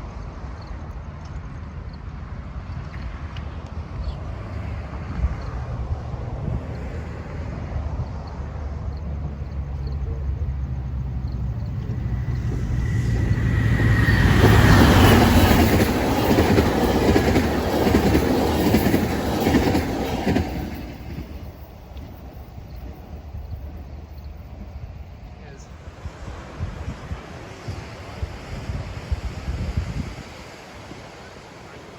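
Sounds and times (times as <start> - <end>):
diesel locomotive hum: 0.0 - 31.9
rush of wheels on rail: 0.0 - 31.9.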